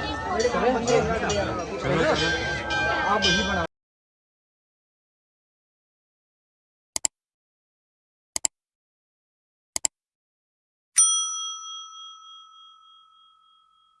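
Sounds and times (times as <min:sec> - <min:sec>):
bell ding: 0:11.0 - 0:14.0.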